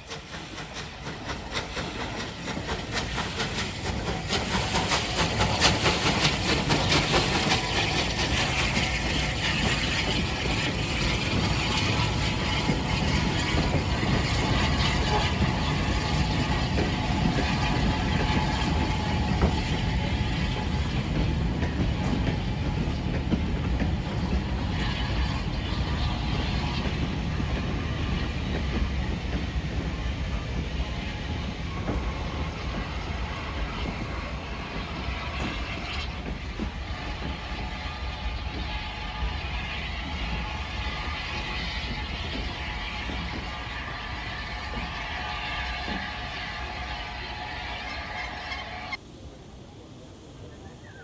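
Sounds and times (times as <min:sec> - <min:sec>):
train rumbling by: 0:00.0 - 0:51.0.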